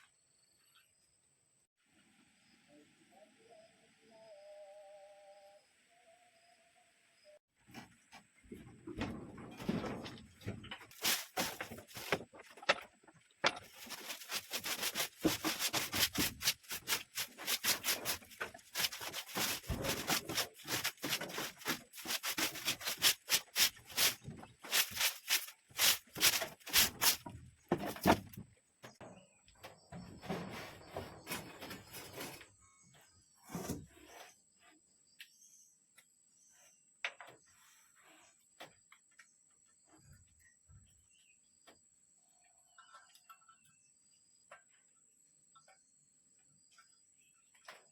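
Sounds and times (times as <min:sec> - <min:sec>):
wood rubbing and scraping: 0:07.7 - 0:29.2, 0:29.8 - 0:32.7.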